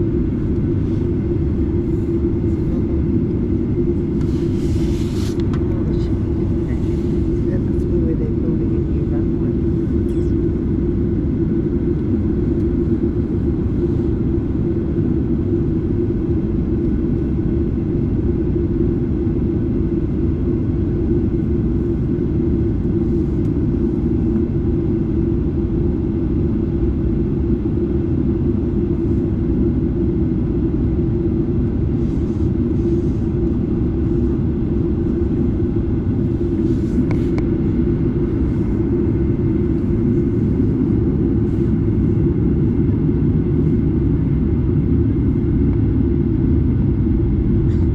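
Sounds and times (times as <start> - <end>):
airflow: 0.0 - 15.1, 31.4 - 47.9
jet engine rumble in cabin: 0.0 - 47.9.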